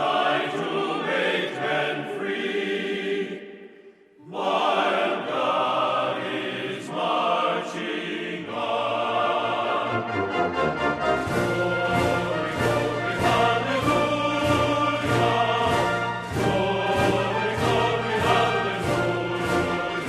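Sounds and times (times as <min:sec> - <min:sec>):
choir singing: 0:00.0 - 0:20.0.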